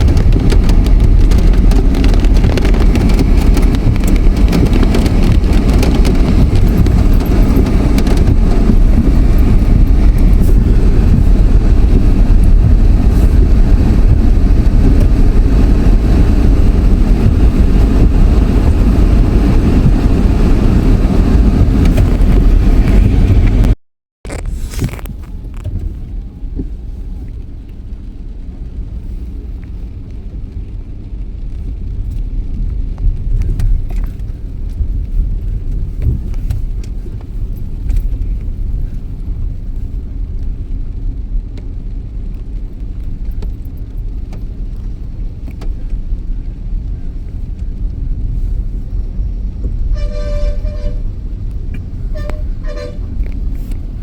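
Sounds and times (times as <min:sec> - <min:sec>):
road traffic rumble: 0:00.0 - 0:54.0
vehicle horn short toots: 0:49.9 - 0:51.2, 0:52.1 - 0:53.2.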